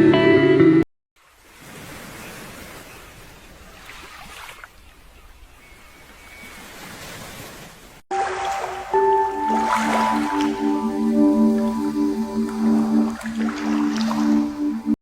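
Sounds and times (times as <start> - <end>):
sea waves on pebble beach: 1.2 - 4.7, 6.4 - 11.0, 11.6 - 14.8.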